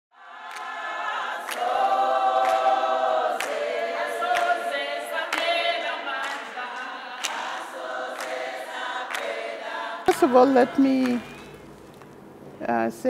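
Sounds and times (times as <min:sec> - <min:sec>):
choir singing in harmony: 0:00.2 - 0:11.6
sharp percussive beat: 0:10.1 - 0:11.8.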